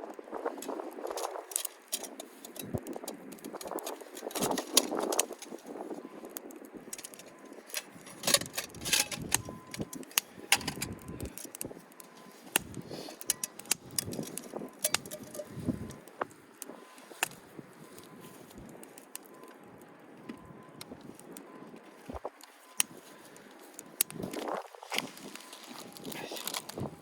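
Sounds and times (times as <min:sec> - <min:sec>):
gusty wind on microphone: 0:02.2 - 0:11.9, 0:13.7 - 0:18.8, 0:24.0 - 0:27.0
sharp clicks and clattering: 0:06.9 - 0:11.7, 0:12.5 - 0:15.5.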